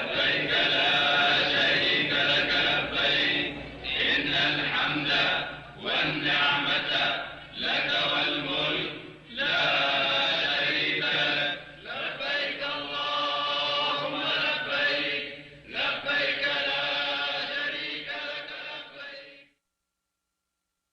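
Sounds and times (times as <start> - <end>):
vocal chant: 0.0 - 19.5.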